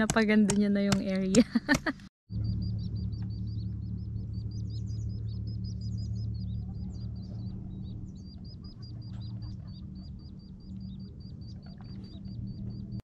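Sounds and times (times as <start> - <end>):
low hum: 0.0 - 13.0
bird chirping: 2.3 - 13.0.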